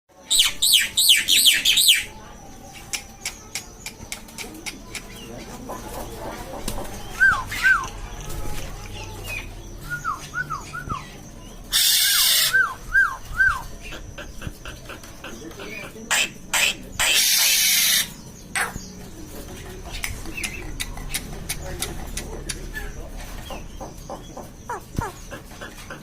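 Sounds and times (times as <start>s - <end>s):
bird clicks: 2.9s - 5.2s, 20.0s - 22.7s
myna calling: 9.0s - 19.0s, 22.6s - 26.0s
harsh bird call: 9.2s - 13.8s, 16.1s - 18.9s.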